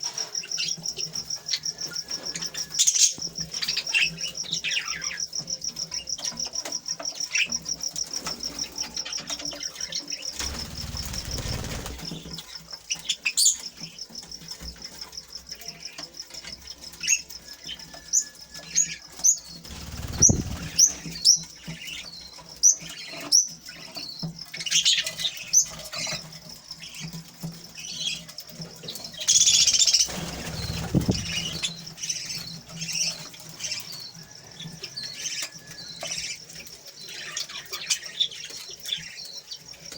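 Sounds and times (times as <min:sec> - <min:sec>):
wings fluttering: 0:10.2 - 0:13.6, 0:18.6 - 0:22.1, 0:28.8 - 0:33.8
fast high bird trill: 0:19.4 - 0:21.4, 0:29.2 - 0:32.5.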